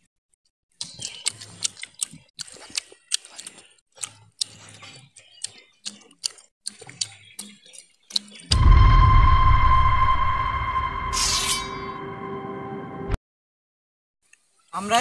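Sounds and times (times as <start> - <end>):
child chewing crunchy chicken: 0.7 - 8.5.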